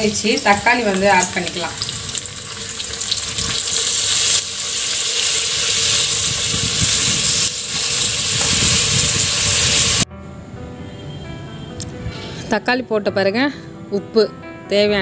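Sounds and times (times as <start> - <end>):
vegetables sizzling in a pot: 0.0 - 10.1.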